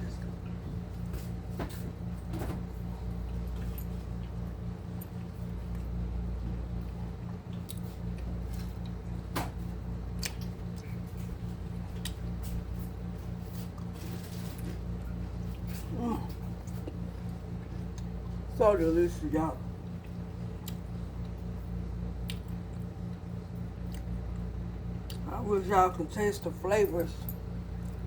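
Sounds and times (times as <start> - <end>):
low electrical hum: 0.0 - 28.0
close-up chewing and mouth sounds: 2.8 - 18.5, 19.6 - 25.3.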